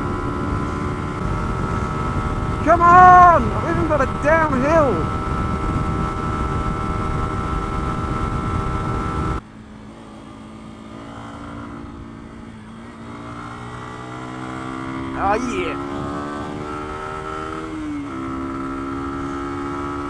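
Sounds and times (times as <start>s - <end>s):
wind rush on microphone: 0.0s - 9.4s
motorcycle engine at speed: 0.0s - 20.0s.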